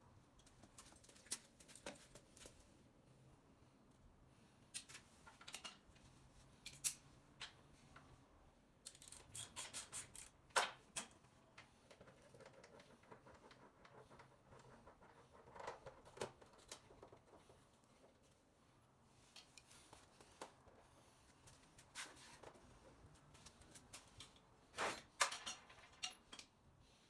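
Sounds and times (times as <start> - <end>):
tools clicking and scraping: 6.6 - 7.6, 8.8 - 12.7.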